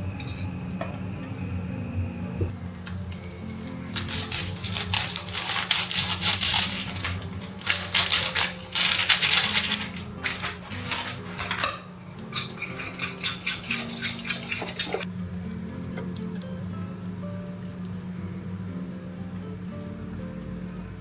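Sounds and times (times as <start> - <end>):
soft background music: 0.0 - 21.0
cutlery clinking against dishes: 4.0 - 15.1.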